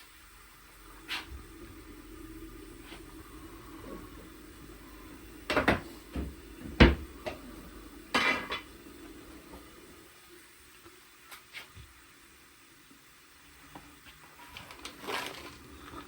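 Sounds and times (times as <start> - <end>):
low steady hum: 0.0 - 11.1
pots and dishes clattering: 8.1 - 8.7.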